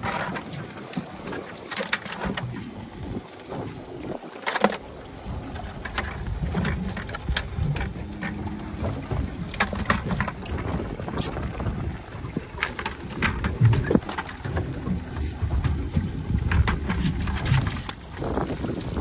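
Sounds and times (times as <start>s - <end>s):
wind rumbling on microphone: 2.2s - 19.0s
sharp clicks and knocks: 5.7s - 11.5s, 12.5s - 18.0s.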